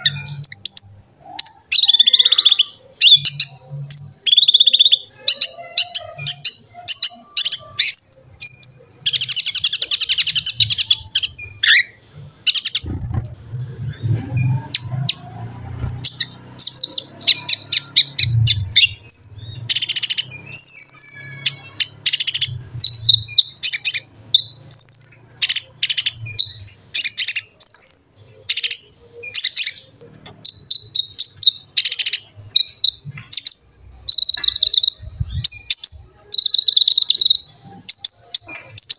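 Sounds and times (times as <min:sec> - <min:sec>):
buzzy bird trill: 0:00.0 - 0:38.9
sunbird chirping: 0:13.9 - 0:38.9.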